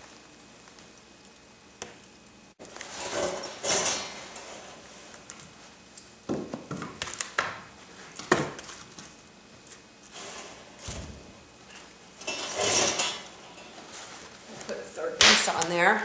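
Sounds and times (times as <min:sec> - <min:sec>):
scraping rustle of firewood: 0:02.6 - 0:05.8, 0:09.7 - 0:14.7.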